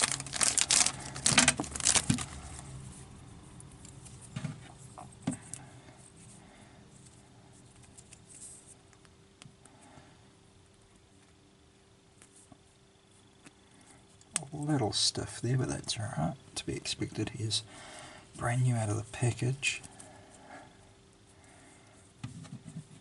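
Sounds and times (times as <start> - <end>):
plastic packaging crinkling: 0.0 - 2.7.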